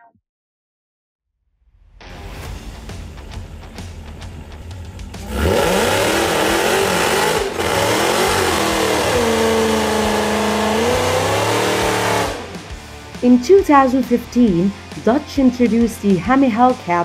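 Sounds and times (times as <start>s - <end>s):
car engine revving: 2.1s - 15.9s
tyres spinning: 5.2s - 12.8s.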